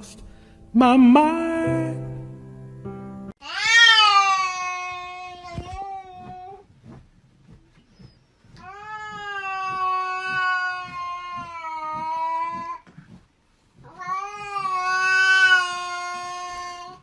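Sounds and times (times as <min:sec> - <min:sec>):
cat yowling: 0:03.4 - 0:06.2, 0:13.9 - 0:17.0.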